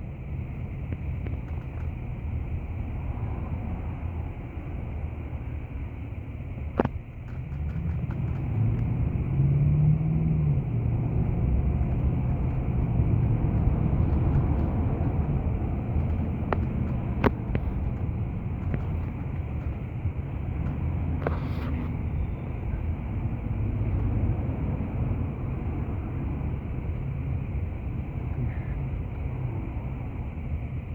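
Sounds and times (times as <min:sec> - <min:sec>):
car engine and road noise: 0:00.0 - 0:30.9
sharp clicks: 0:11.8 - 0:21.0.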